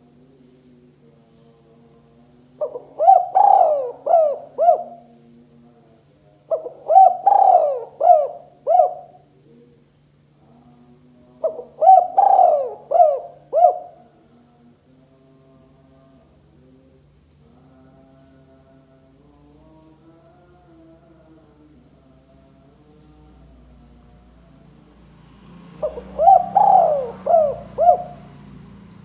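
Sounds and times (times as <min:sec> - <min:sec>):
faint steady hum: 0:00.0 - 0:29.0
dove cooing: 0:02.6 - 0:05.1, 0:06.5 - 0:09.3, 0:11.4 - 0:14.1, 0:25.8 - 0:28.4.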